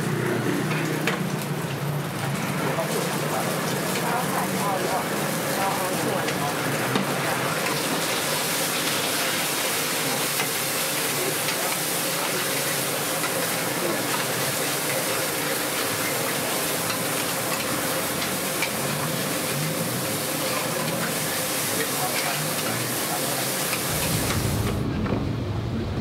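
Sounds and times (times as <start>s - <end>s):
oysters sizzling in oil: 0.0s - 24.7s.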